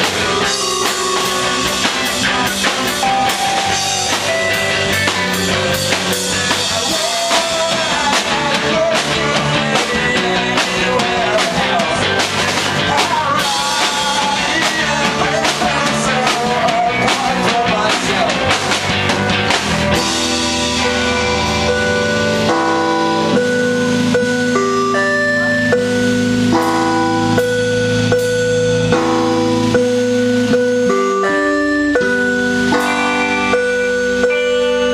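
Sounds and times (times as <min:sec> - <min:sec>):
person singing: 0:00.0 - 0:18.7, 0:30.4 - 0:34.9
drums: 0:00.0 - 0:34.9
guitar: 0:00.0 - 0:34.9
held bell-like keyboard notes: 0:00.0 - 0:34.9.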